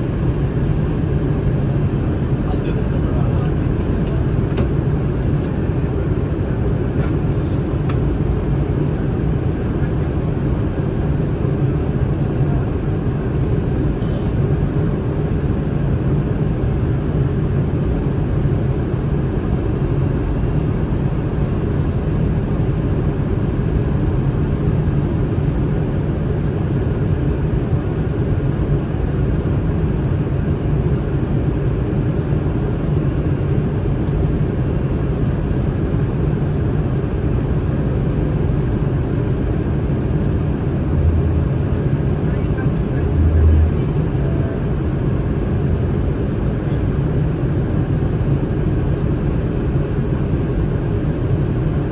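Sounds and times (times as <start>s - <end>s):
jet engines rumbling: 0.0s - 51.9s
air rushing along fuselage: 34.5s - 51.9s.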